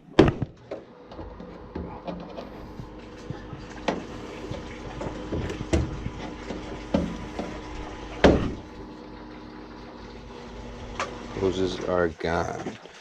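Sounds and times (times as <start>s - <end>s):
steady low hum: 0.0s - 12.2s
clicks and knocks of hoses: 0.2s - 9.3s.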